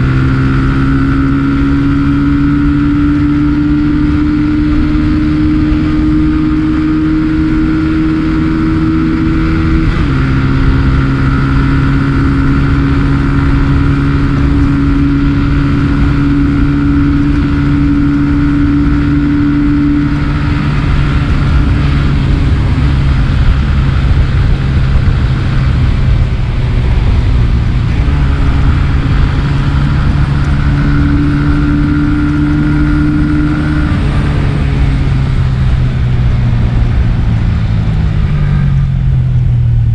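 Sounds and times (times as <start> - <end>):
wind rumble on microphone: 0.0 - 39.9
scooter engine running: 8.6 - 39.9.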